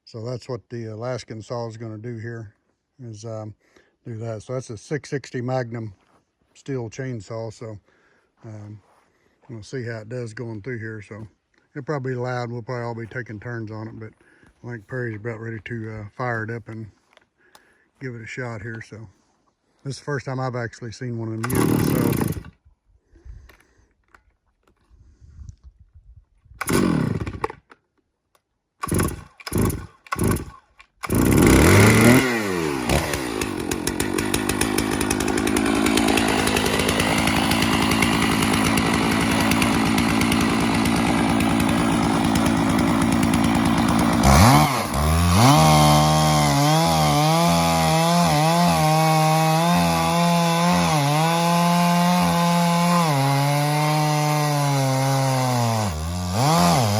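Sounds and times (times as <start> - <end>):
chainsaw pull-starting and running: 21.3 - 22.6, 26.6 - 27.9, 28.8 - 56.9.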